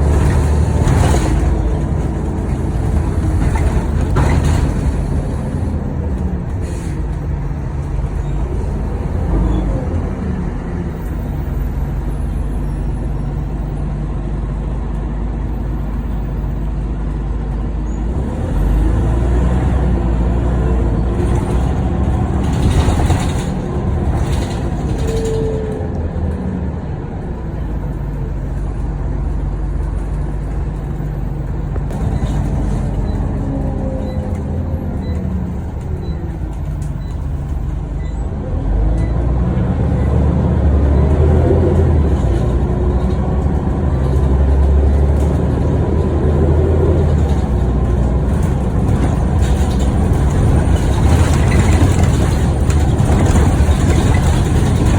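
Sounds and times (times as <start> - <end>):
bus diesel engine: 0.0 - 54.9.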